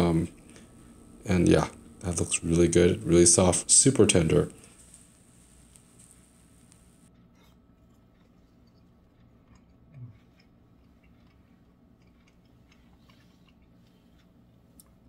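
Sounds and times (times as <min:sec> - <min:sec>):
person chewing: 0:07.2 - 0:15.0.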